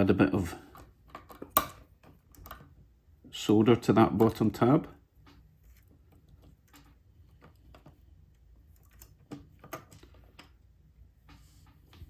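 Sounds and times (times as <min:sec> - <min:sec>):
low steady hum: 0:00.0 - 0:12.0
tools clicking and tapping: 0:00.7 - 0:02.7.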